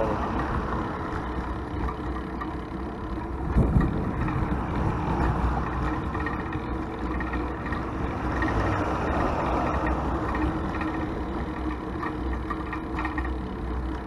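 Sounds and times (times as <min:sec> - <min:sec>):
road traffic rumble: 0:00.0 - 0:14.0
vehicle passing close by: 0:03.6 - 0:11.2.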